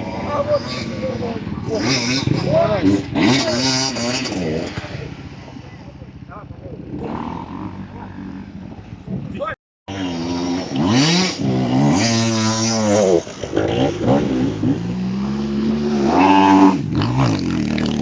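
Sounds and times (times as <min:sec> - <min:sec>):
vehicle engine revving: 0:00.0 - 0:18.0.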